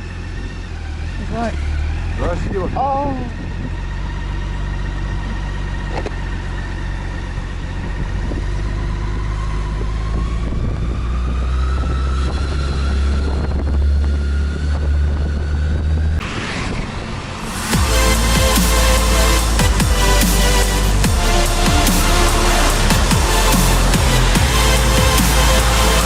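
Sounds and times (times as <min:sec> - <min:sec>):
motorcycle engine rumbling: 0:00.0 - 0:26.0
music: 0:17.4 - 0:26.0.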